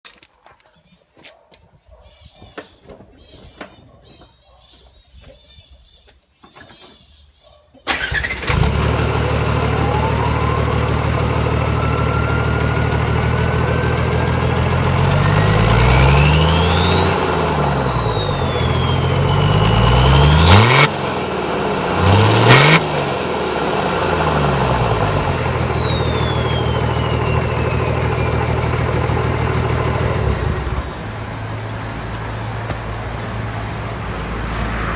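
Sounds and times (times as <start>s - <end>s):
diesel engine starting and revving: 7.8s - 34.9s
turbo whistle: 16.4s - 19.8s, 24.6s - 28.7s.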